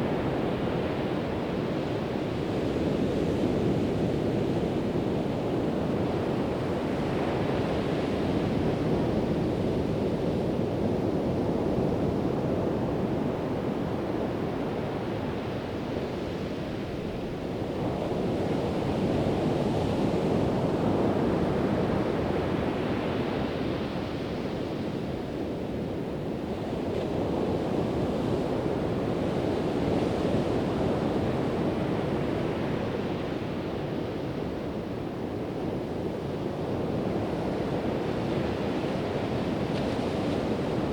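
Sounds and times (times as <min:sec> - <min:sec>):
wind on microphone: 0:24.8 - 0:40.9.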